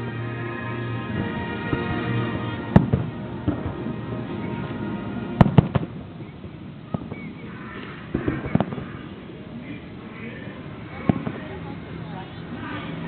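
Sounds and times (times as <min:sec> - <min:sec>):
music: 0:00.0 - 0:06.1
fireworks bangs: 0:01.0 - 0:09.7, 0:10.9 - 0:12.6.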